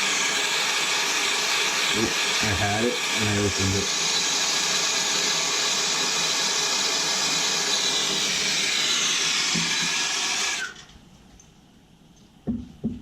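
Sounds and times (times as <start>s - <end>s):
gas torch flame hissing: 0.0s - 5.9s, 6.5s - 10.8s.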